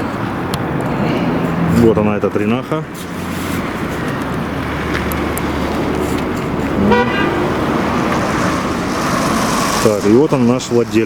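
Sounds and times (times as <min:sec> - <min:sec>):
car engine and road noise: 0:00.0 - 0:11.0
car horn toot: 0:06.8 - 0:08.2.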